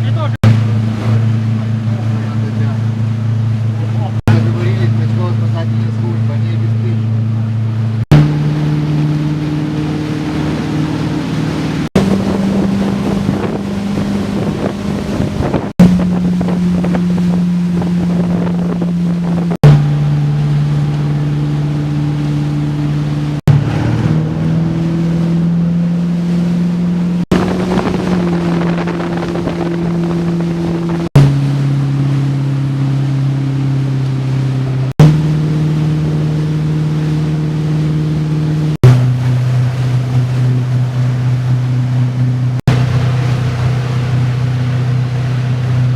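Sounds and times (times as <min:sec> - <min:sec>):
motorboat engine humming: 0:00.0 - 0:45.9
water noise: 0:00.0 - 0:45.9
wind buffeting: 0:07.8 - 0:31.1.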